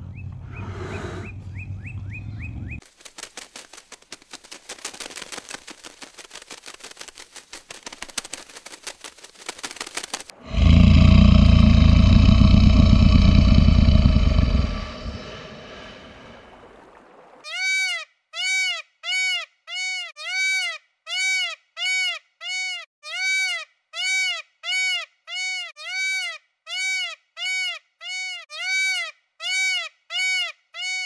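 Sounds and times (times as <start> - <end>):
peacock calling: 17.4 - 31.0.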